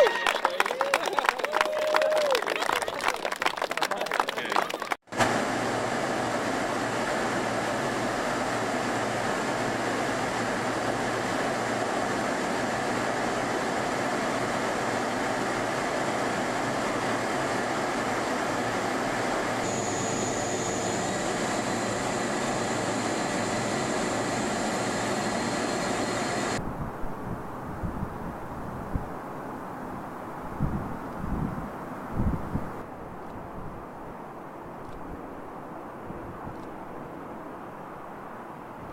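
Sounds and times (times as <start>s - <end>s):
mechanical roar with high whine: 5.1s - 26.6s.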